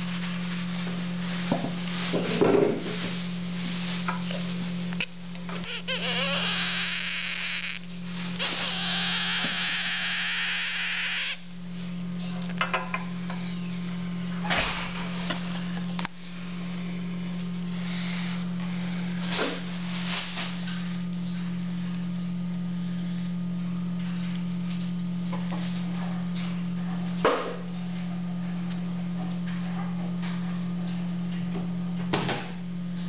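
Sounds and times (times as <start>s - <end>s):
steady low hum: 0.0s - 33.0s
parrot chicks begging: 5.0s - 11.5s.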